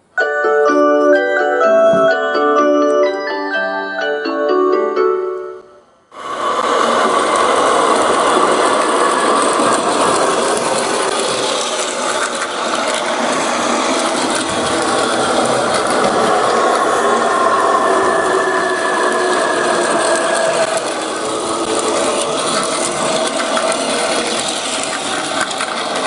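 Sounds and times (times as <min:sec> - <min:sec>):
toy train motor whirring: 0:06.2 - 0:26.0
wheels clattering on plastic track: 0:06.2 - 0:26.0.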